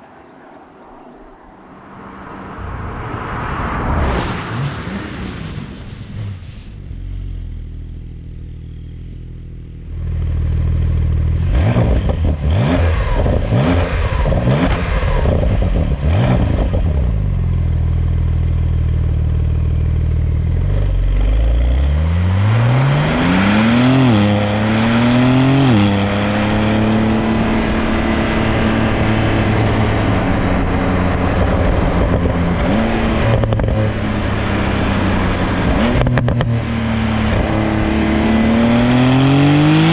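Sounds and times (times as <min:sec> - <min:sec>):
car engine revving and accelerating: 0:11.3 - 0:17.4, 0:20.4 - 0:39.9.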